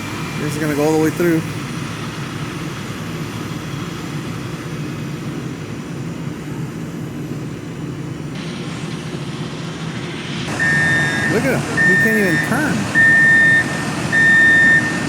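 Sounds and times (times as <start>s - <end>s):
heavy vehicle engine running: 0.0s - 15.0s.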